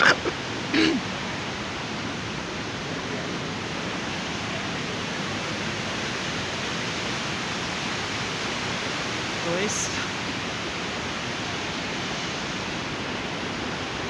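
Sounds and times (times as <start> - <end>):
short vocal sound: 0.0 - 1.0
waterfall rushing: 0.0 - 14.0.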